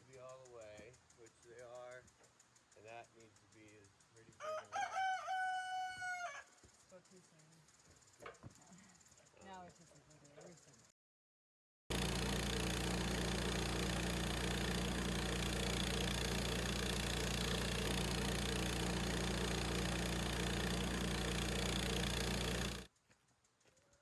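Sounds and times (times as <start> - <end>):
sawmill gas engine running: 11.9 - 22.9.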